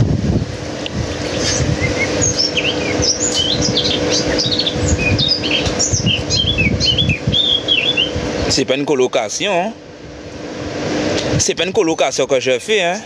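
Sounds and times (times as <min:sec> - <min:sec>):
wind noise on microphone: 0:00.0 - 0:08.5
birds chirping chorus: 0:01.0 - 0:08.8.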